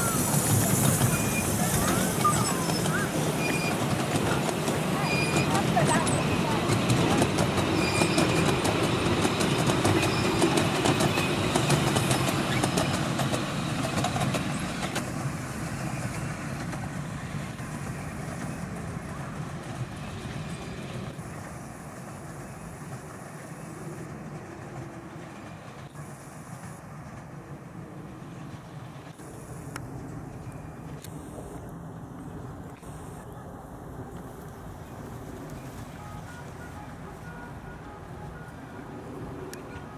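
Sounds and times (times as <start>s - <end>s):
miniature train wheels clicking: 0.0s - 15.2s.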